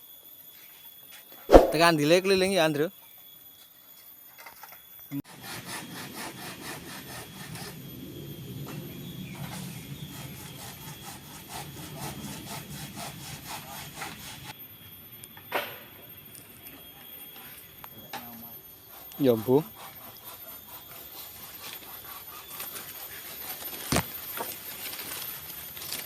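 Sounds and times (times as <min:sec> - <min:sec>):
wood being sawn: 0:05.3 - 0:07.8, 0:10.1 - 0:14.5, 0:19.3 - 0:24.0.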